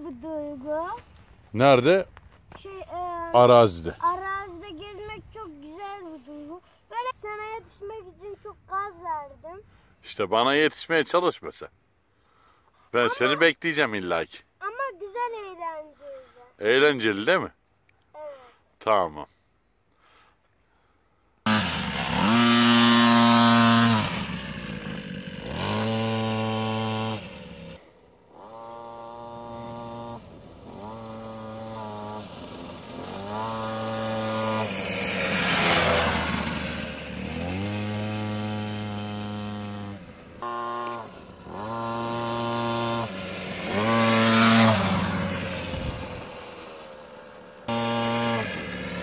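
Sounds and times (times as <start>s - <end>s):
small two-stroke engine revving: 21.4s - 49.0s.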